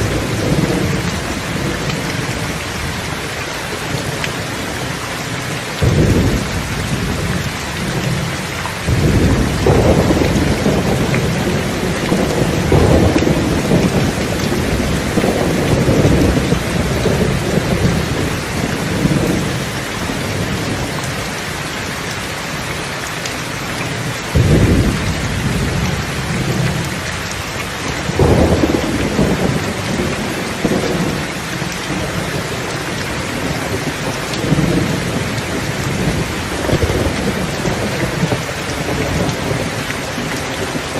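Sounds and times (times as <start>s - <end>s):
heavy rain: 0.0s - 40.9s
rolling thunder: 5.8s - 20.9s, 24.0s - 27.2s, 28.0s - 40.9s
sharp thunder crack: 8.9s - 18.0s, 24.4s - 26.6s.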